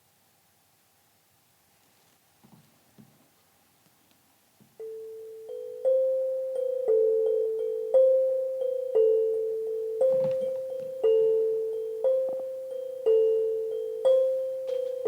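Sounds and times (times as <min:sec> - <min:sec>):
slow electric piano notes: 0:10.0 - 0:15.0.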